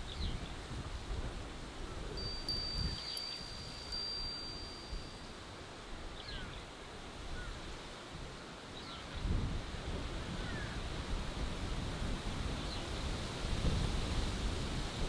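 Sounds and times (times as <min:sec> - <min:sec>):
wind blowing: 0:00.0 - 0:07.4
chime ringing high tone: 0:02.2 - 0:05.4.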